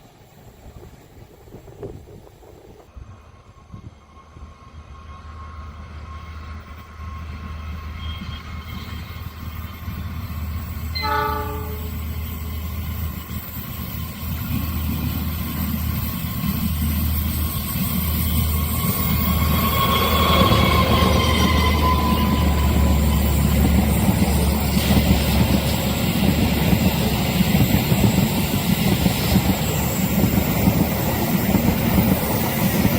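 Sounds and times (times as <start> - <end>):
train engine and rail noise: 0.0 - 32.9
locomotive horn blast: 10.9 - 12.1.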